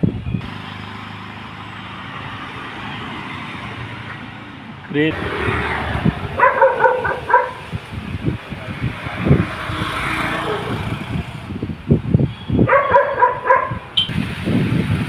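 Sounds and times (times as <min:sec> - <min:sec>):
dog barking: 0:06.4 - 0:07.6, 0:12.6 - 0:13.8.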